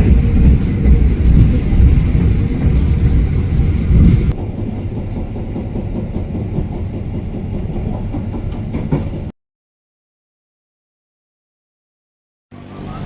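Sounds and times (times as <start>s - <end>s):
train rumbling on rails: 0.0s - 9.3s.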